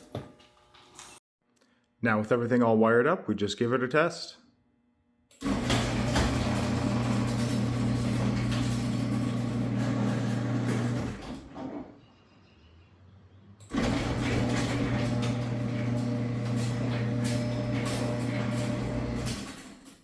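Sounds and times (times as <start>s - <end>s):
garage door opener motor humming: 5.4s - 11.9s, 13.6s - 20.0s.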